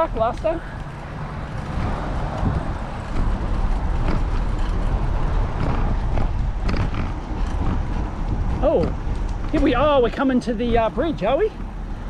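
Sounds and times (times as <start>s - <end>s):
bicycle tyre noise: 0.0s - 12.0s
wind rumble on microphone: 0.0s - 12.0s.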